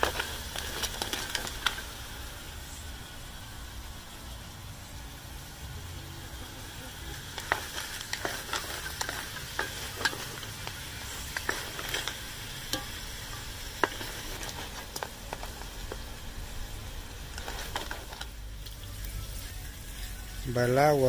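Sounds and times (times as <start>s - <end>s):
spatula stirring: 0.0s - 1.9s, 6.9s - 20.2s
seafood sizzling in a pot: 0.0s - 21.0s.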